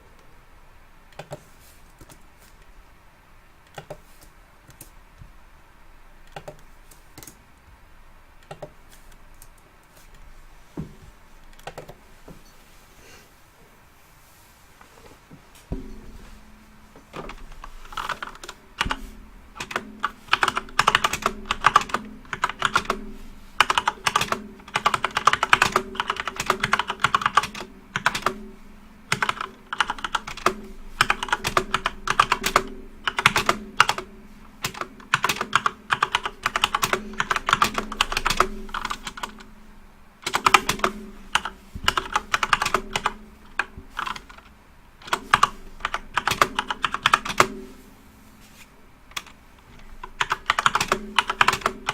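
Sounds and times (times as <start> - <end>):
faint low hum: 0.0 - 51.9
typing on computer keyboard: 1.2 - 2.2, 3.7 - 5.0, 6.3 - 7.4, 8.4 - 9.6, 11.5 - 12.0, 17.2 - 28.5, 29.1 - 39.5, 40.2 - 47.6, 49.1 - 51.9.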